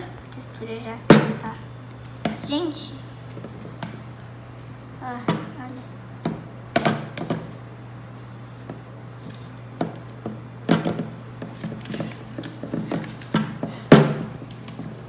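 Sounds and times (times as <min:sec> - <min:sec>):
utensil knocking and scraping pot: 0:08.6 - 0:15.0.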